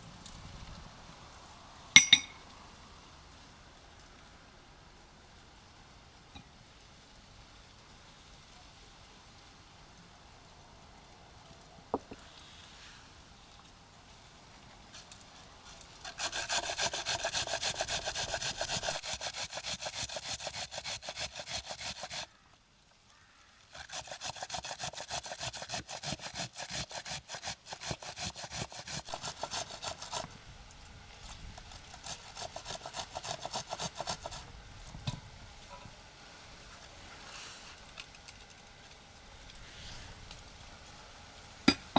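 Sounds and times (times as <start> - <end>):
rhythmic scraping strokes: 23.8 - 30.3, 31.2 - 34.4.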